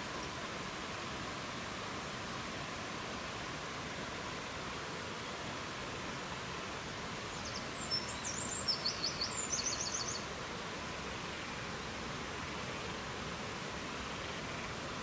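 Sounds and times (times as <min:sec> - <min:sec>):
songbird singing: 0:07.3 - 0:10.3.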